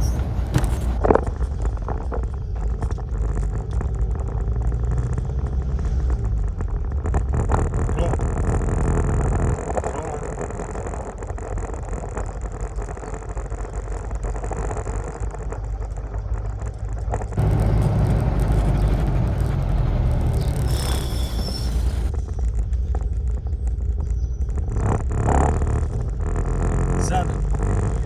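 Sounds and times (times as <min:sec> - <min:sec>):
car engine and road noise: 0:00.0 - 0:28.0
hiss: 0:20.5 - 0:22.1.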